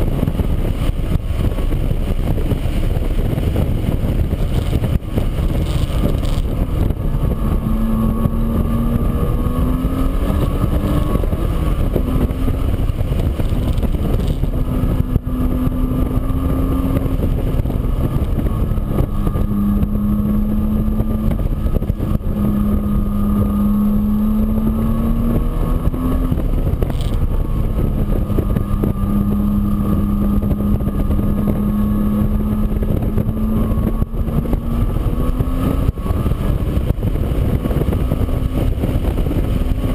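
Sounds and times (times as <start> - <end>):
motor running with low rumble: 0.0 - 39.9.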